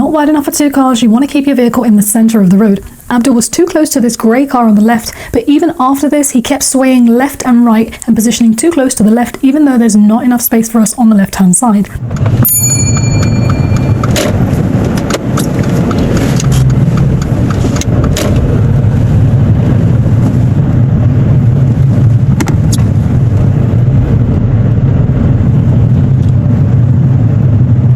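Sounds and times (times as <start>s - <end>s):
car engine and road drone: 11.8s - 27.9s.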